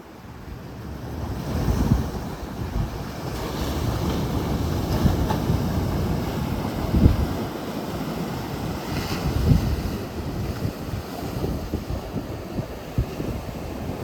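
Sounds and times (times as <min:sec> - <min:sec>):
sea surf washing in: 0:00.1 - 0:14.0
wind buffeting microphone: 0:00.3 - 0:14.0.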